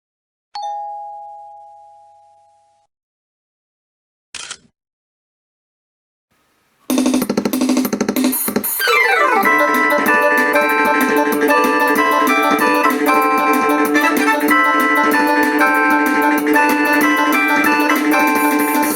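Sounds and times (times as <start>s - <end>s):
keyboard chime note: 0.6s - 2.8s, 8.9s - 18.9s
keyboard drum accompaniment pattern: 6.9s - 18.9s.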